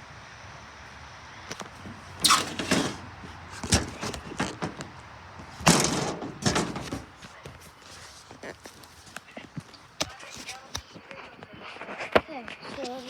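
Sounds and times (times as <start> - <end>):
knocks and thumps of objects: 1.5 - 8.0.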